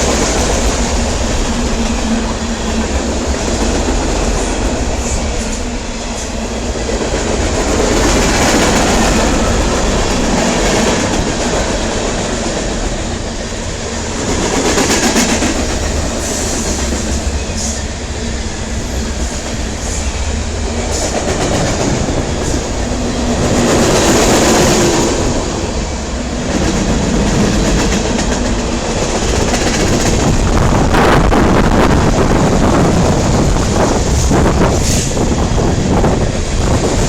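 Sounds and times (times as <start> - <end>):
steel wheels rushing on rail: 0.0 - 37.0.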